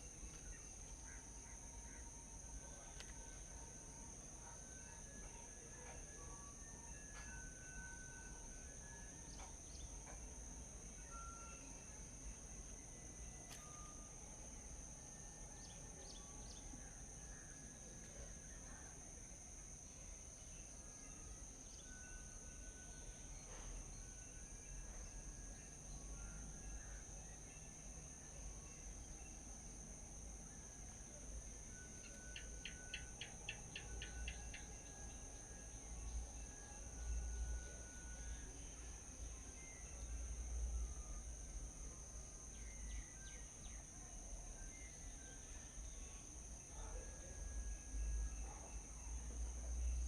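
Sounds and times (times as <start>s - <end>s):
high-pitched insect drone: 20.5s - 50.0s.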